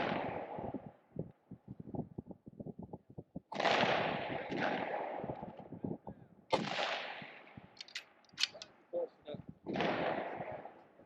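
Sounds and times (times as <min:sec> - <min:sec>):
rifle shots with echo: 0:00.0 - 0:00.7, 0:03.5 - 0:05.6, 0:06.5 - 0:08.6, 0:09.7 - 0:11.0.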